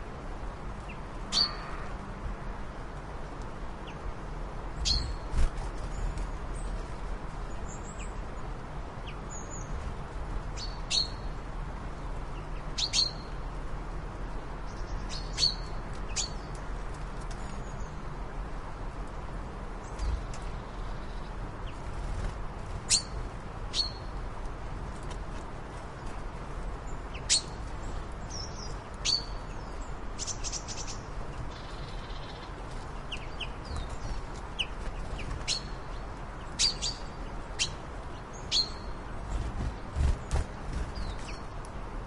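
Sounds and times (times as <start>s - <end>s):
birds chirping: 0.8s - 1.9s, 4.8s - 6.8s, 10.5s - 11.4s, 12.3s - 13.4s, 22.6s - 24.2s, 26.9s - 41.6s.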